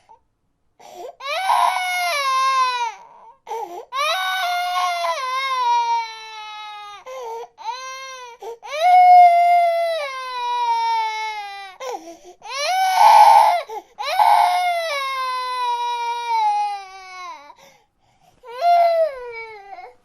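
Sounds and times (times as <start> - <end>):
infant gasping for breath: 0.8 - 1.2, 3.4 - 4.0, 7.0 - 7.5, 8.3 - 8.6, 11.8 - 12.4, 13.7 - 14.0, 17.6 - 18.5
infant crying: 0.8 - 17.7, 18.4 - 20.0.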